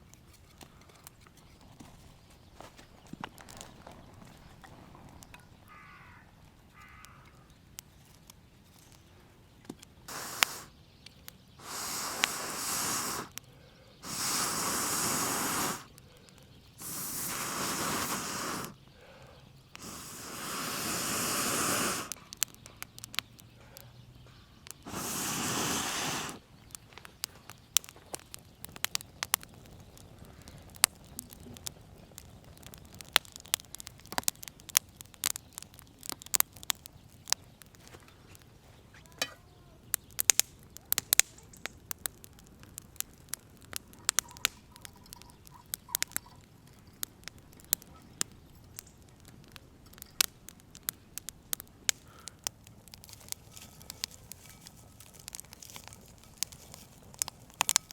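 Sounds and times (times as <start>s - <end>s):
fire crackling and popping: 0.0s - 57.9s
person blowing on fire: 10.1s - 10.8s, 11.6s - 13.4s, 14.0s - 16.0s, 16.8s - 18.8s, 19.8s - 22.2s, 24.8s - 26.5s.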